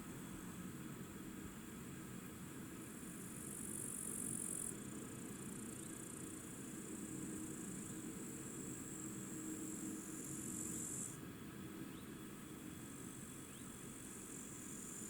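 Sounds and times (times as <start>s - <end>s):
insects trilling: 8.4s - 11.2s.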